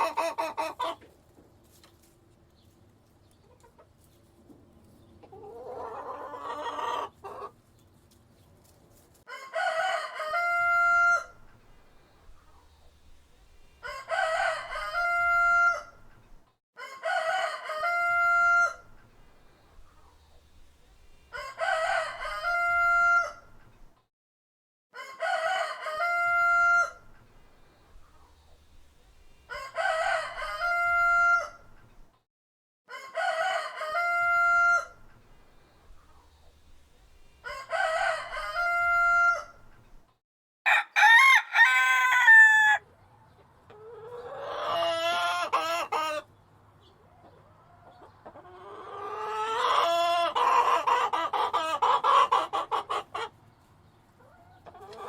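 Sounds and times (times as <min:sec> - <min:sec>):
rooster crowing: 0:09.3 - 0:11.4, 0:13.8 - 0:16.0, 0:16.8 - 0:18.9, 0:21.3 - 0:23.5, 0:25.0 - 0:27.1, 0:29.5 - 0:31.7, 0:32.9 - 0:35.0, 0:37.4 - 0:39.7, 0:40.7 - 0:42.8.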